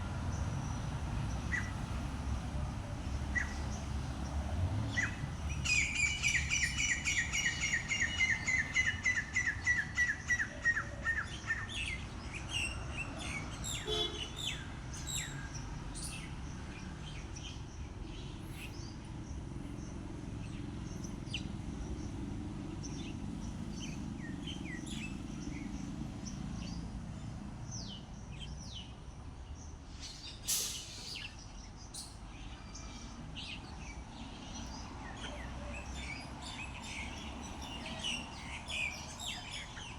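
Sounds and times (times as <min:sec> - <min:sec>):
short bird chirps: 0:30.0 - 0:31.4.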